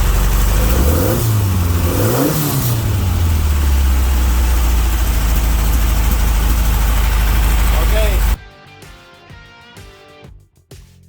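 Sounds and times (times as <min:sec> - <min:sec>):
car engine idling and revving: 0:00.0 - 0:08.4.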